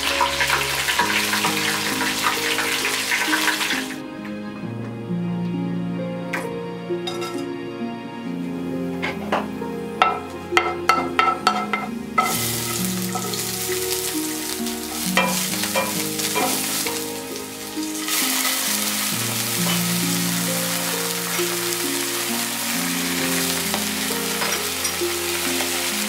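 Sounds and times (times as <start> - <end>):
garlic and chilies sizzling in oil: 0.0 - 4.0, 10.9 - 26.0
background music: 0.0 - 26.0.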